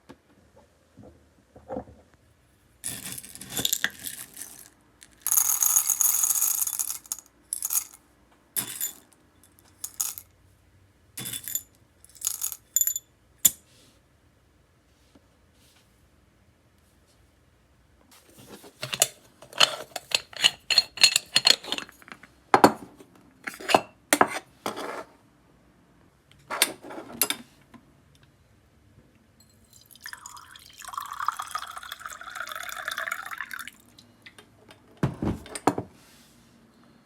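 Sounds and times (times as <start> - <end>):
liquid pouring: 29.7 - 33.8.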